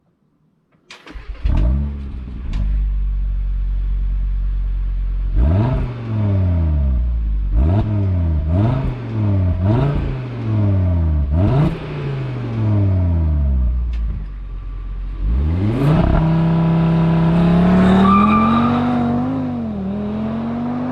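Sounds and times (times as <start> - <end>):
car engine starting and idling: 0.8 - 20.9
engine revving blips: 15.2 - 20.9.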